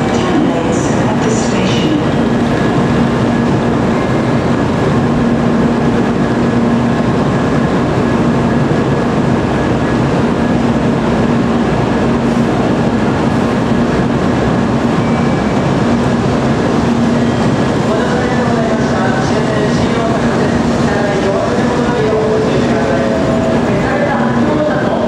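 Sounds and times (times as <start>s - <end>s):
train equipment humming: 0.0s - 25.0s.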